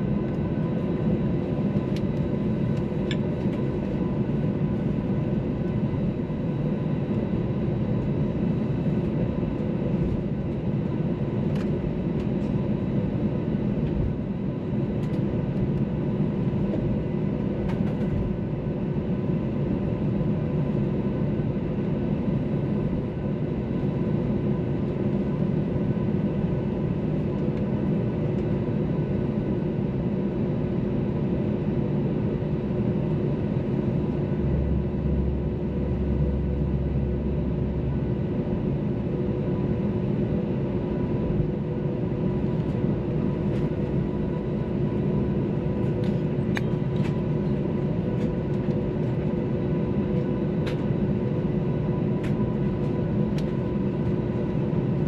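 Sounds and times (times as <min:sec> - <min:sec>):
jet engines in cabin: 0:00.0 - 0:55.0.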